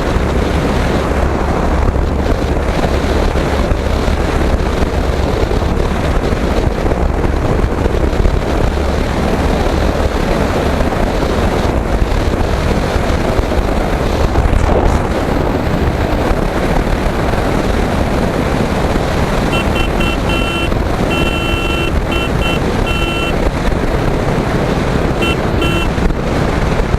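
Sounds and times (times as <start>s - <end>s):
motorcycle running: 0.0s - 26.9s
wind noise on microphone: 0.0s - 26.9s
short high beeps: 19.5s - 23.4s, 25.2s - 25.9s.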